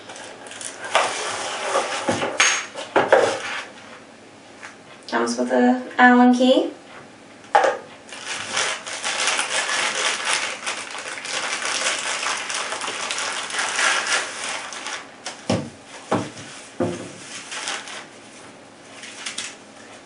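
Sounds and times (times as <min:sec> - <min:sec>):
packaging crinkling: 0:00.0 - 0:01.7, 0:08.1 - 0:15.5, 0:17.2 - 0:18.1, 0:19.0 - 0:19.6.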